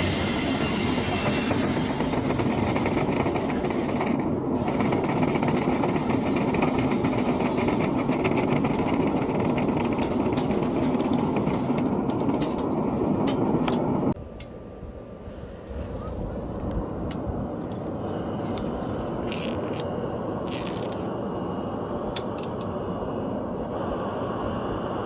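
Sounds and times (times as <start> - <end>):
loud machine noise: 0.0 - 5.0.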